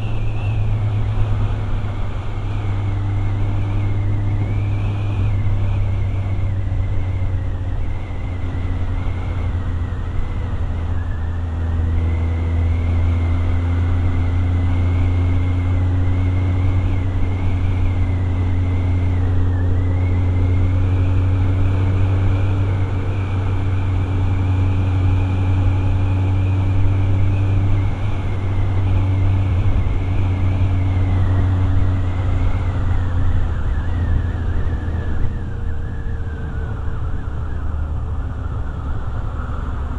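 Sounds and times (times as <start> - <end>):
motorcycle engine rumbling: 0.0 - 39.9.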